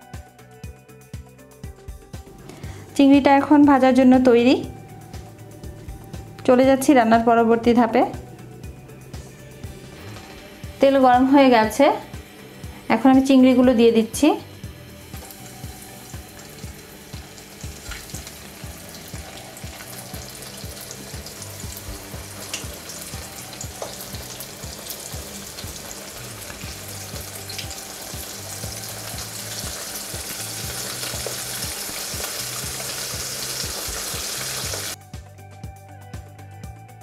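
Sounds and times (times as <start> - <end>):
oil popping: 15.1 - 35.0
prawns deep-frying in oil: 15.1 - 35.0.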